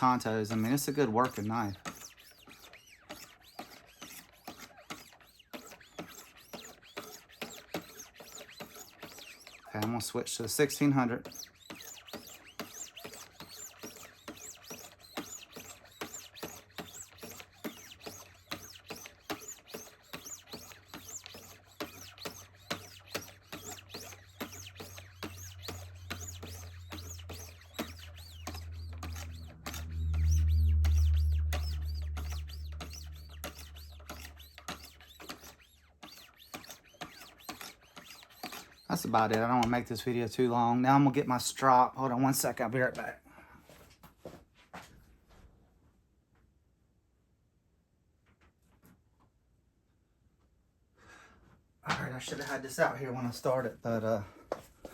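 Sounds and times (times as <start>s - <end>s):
sharpening stones scraping knife edge: 11.3s - 38.9s
low drone: 28.9s - 34.1s.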